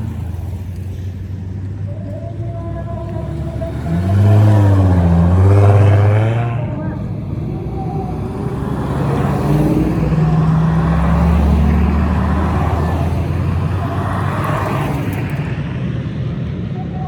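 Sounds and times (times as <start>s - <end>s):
car driving past: 0.0s - 16.6s.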